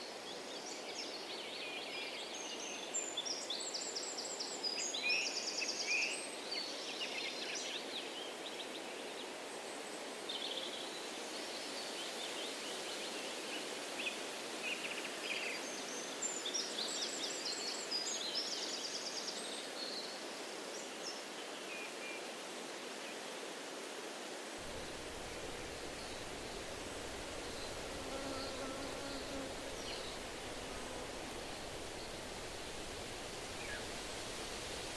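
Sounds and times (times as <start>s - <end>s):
breeze rushing in trees: 24.6s - 34.9s
songbirds chirping and trilling: 24.7s - 34.9s.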